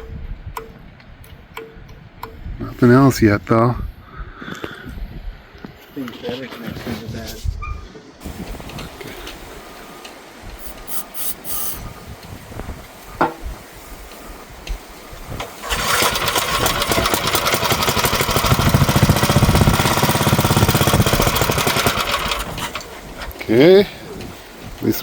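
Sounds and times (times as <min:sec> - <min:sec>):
electric starter cranking engine: 0:15.3 - 0:23.3.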